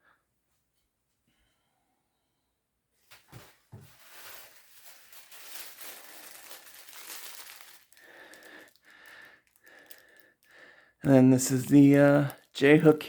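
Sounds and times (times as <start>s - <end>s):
packaging crinkling and rustling: 3.1s - 10.5s, 11.1s - 13.0s.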